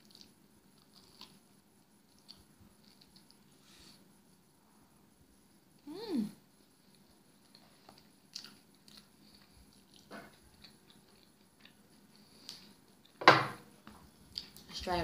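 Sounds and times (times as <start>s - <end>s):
chewing with soft crunches: 0.0s - 3.6s, 6.6s - 13.2s, 13.8s - 14.8s.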